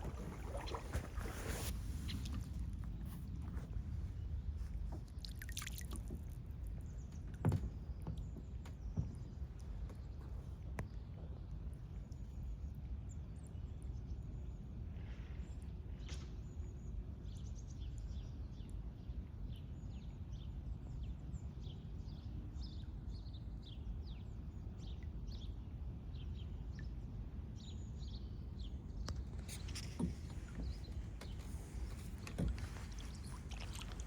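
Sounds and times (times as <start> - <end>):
small birds chirping: 27.6 - 34.0.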